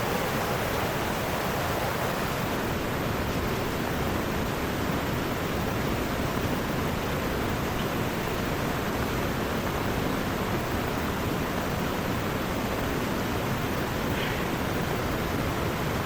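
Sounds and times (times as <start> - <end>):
heavy rain pouring: 0.0 - 5.5
river rushing: 0.0 - 16.0.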